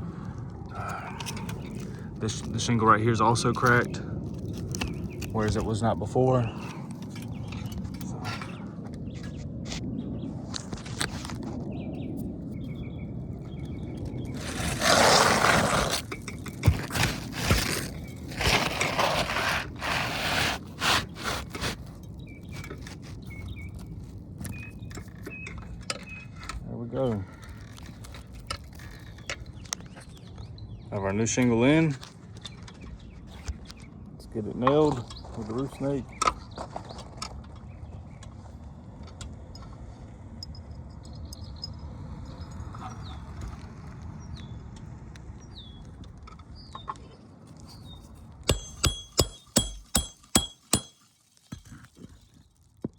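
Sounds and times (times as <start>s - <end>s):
shingle scraping against shingles: 14.2s - 26.7s, 47.6s - 52.8s
hammer knocking nail: 48.5s - 51.0s.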